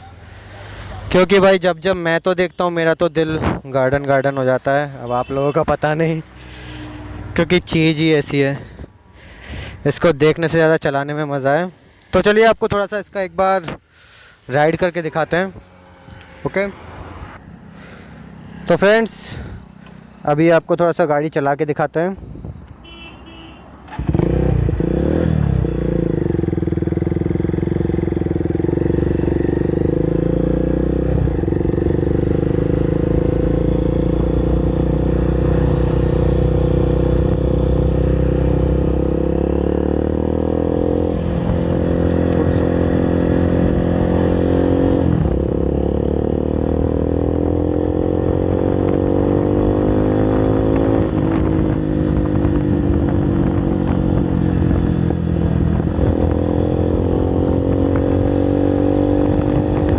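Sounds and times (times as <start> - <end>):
motorcycle engine revving: 0.0 - 10.8, 11.8 - 20.4, 23.8 - 59.9.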